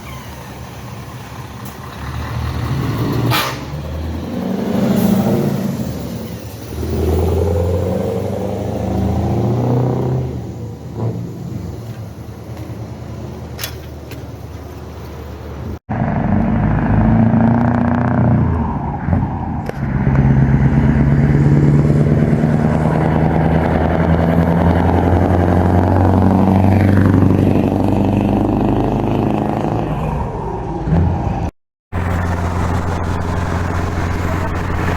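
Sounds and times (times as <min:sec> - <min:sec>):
truck engine running loud: 0:00.0 - 0:13.6, 0:14.8 - 0:30.9, 0:31.9 - 0:34.9.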